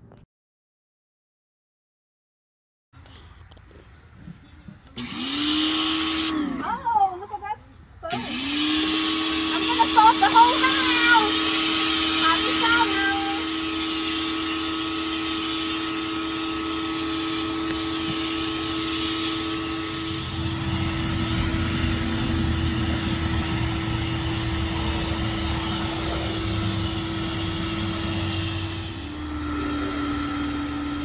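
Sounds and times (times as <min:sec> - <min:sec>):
pressure washer pump hum: 0:04.2 - 0:31.0
water jet hissing: 0:08.1 - 0:31.0.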